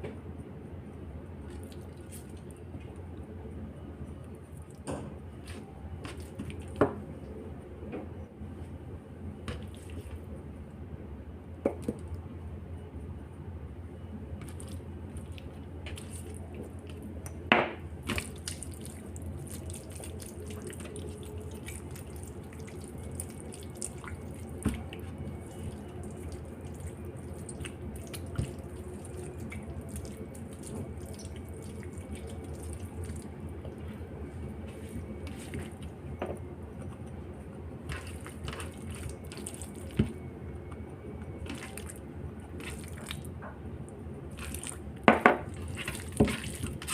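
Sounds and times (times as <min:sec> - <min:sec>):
low steady hum: 0:00.0 - 0:46.9
hands squishing raw chicken: 0:05.4 - 0:06.8, 0:14.4 - 0:17.4, 0:18.0 - 0:36.1, 0:36.8 - 0:43.3, 0:44.3 - 0:44.9, 0:45.5 - 0:46.9.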